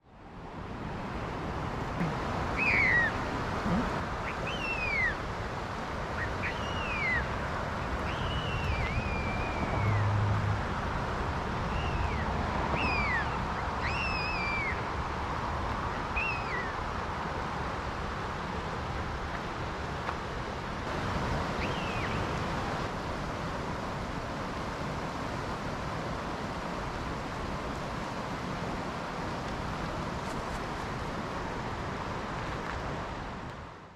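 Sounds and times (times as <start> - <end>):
creek water rushing: 0.0 - 33.9
bird calls sliding in pitch: 2.0 - 5.2.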